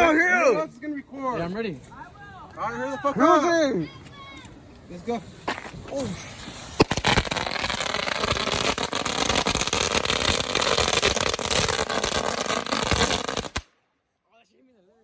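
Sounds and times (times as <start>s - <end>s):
fireworks crackling pops: 5.2s - 13.8s.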